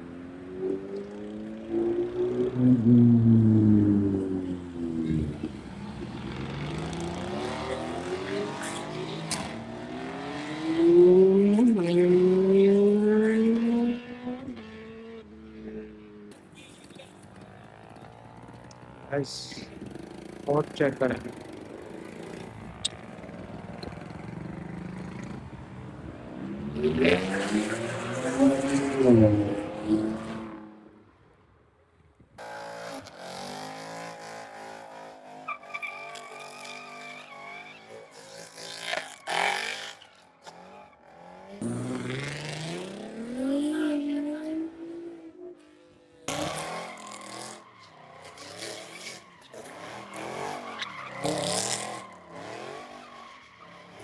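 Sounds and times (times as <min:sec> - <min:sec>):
car engines revving hard: 0:00.0 - 0:18.3, 0:19.3 - 0:30.9, 0:32.4 - 0:54.0
tyre squeal: 0:35.4 - 0:41.0, 0:46.3 - 0:54.0.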